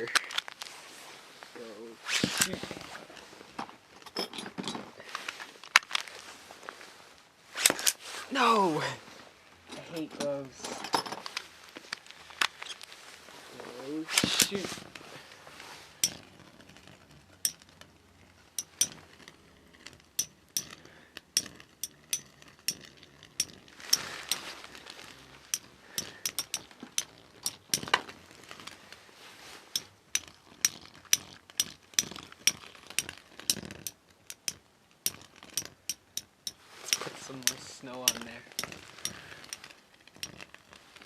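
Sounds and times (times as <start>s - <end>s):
spinning tops clashing metallically: 16.0s - 16.3s, 18.6s - 19.0s, 25.5s - 27.9s.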